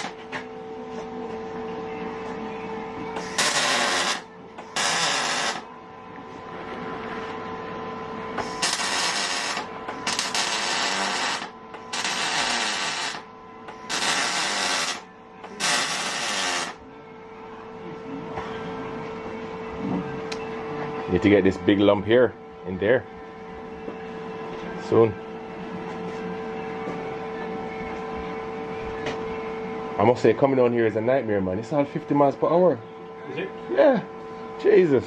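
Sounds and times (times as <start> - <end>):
steady hum: 0.0 - 35.0
welding crackling hiss: 3.2 - 4.2, 4.8 - 5.6, 8.4 - 13.2, 13.9 - 15.0, 15.6 - 16.8.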